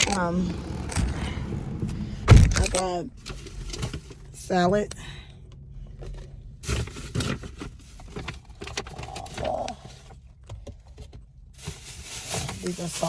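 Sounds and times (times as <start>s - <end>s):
low background rumble: 0.0s - 13.0s
food containers clicking and rustling: 6.0s - 13.0s.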